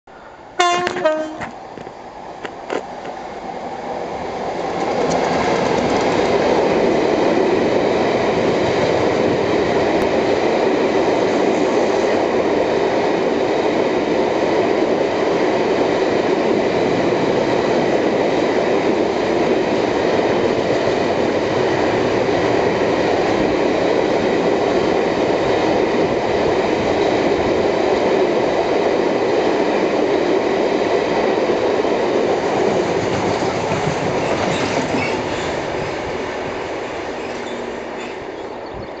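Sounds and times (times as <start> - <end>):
diesel locomotive passing: 0.1 - 39.0
wagon wheels rumbling on rails: 4.7 - 6.9, 32.6 - 35.8.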